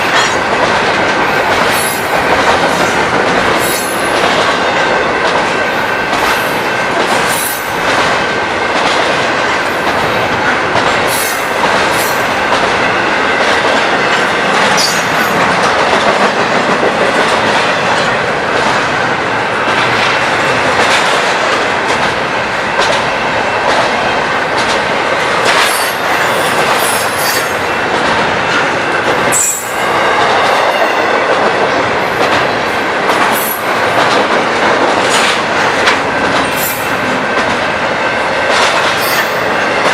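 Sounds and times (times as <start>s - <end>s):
train rolling past: 0.0s - 39.9s
wheels clicking over rail joints: 19.7s - 39.9s.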